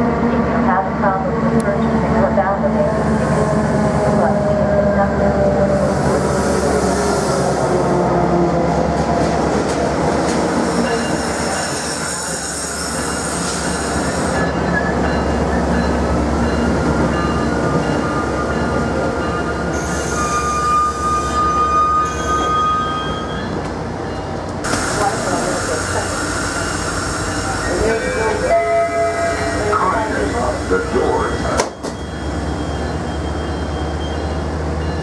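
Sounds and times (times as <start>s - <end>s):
train rumbling slowly past: 0.0s - 21.7s
high squeal from running gear: 19.7s - 23.6s.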